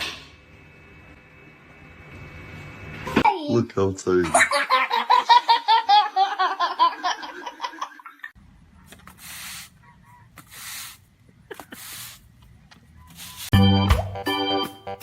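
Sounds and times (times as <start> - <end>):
soft hissing bursts: 9.0 - 9.8, 10.4 - 12.4
person laughing: 11.4 - 12.2.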